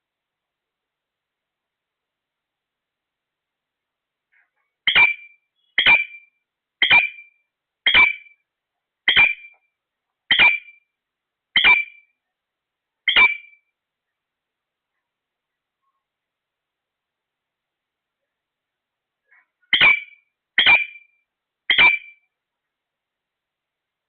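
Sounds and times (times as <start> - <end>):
parrot shrill calls: 4.9 - 7.3, 7.9 - 8.3, 10.3 - 10.8, 11.6 - 12.0, 13.1 - 13.6, 19.7 - 21.1, 21.7 - 22.2.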